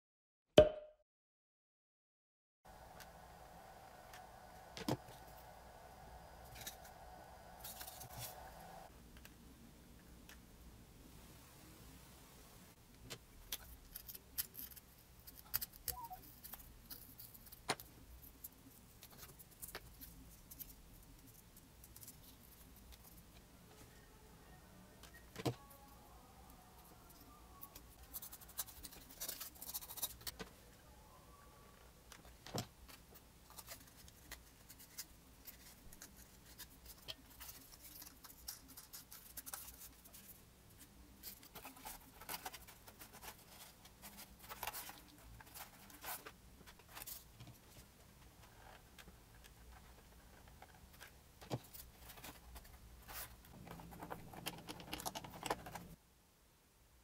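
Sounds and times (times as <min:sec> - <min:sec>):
hands handling cardboard parts: 0:32.1 - 0:56.0.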